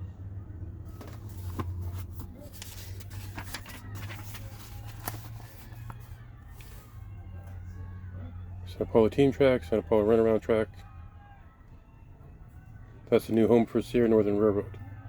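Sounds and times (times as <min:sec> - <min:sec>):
paper rustling: 0:00.9 - 0:07.0.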